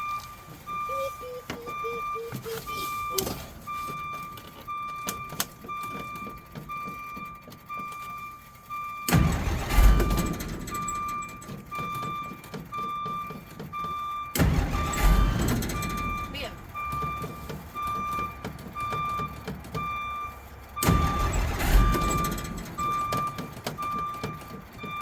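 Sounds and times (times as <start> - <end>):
repeating electronic beep: 0.0 - 3.8, 14.1 - 25.0
starter cranking engine: 9.1 - 12.7, 13.6 - 20.1, 20.8 - 24.9.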